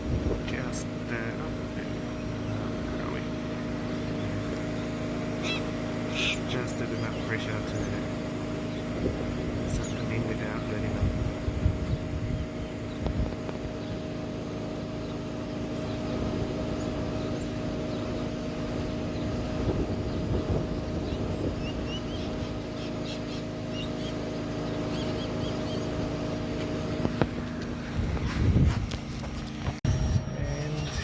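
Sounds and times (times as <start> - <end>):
vacuum motor hum: 0.0 - 31.0
faint bird chirps: 1.6 - 9.0.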